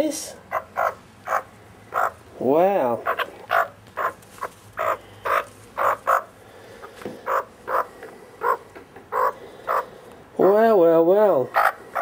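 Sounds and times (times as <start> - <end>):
magpie harsh croaky calls: 0.5 - 2.2, 2.8 - 6.4, 7.2 - 10.0, 11.5 - 12.0.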